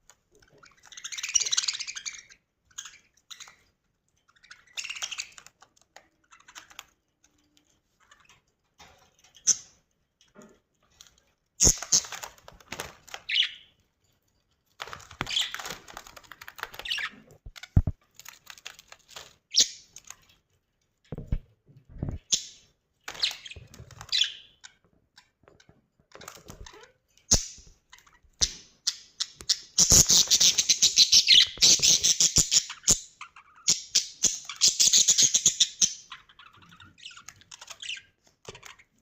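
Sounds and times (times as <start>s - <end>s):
budgerigars chirping: 28.4s - 38.1s.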